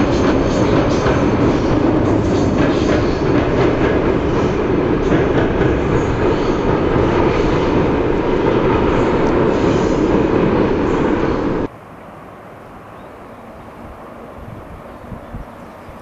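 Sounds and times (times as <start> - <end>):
train rumbling across bridge: 0.0 - 16.0.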